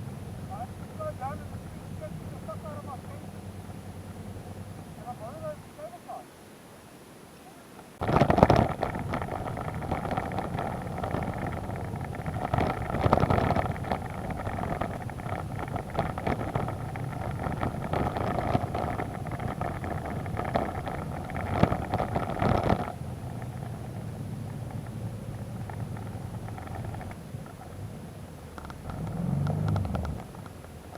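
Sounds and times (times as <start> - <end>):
motorcycle engine running: 0.0 - 5.7, 8.0 - 30.9
wind buffeting microphone: 8.0 - 30.9.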